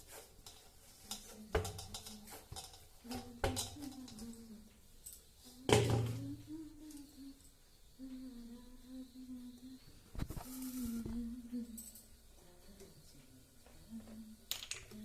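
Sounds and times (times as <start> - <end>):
metal pots knocking and clattering: 0.4 - 4.2.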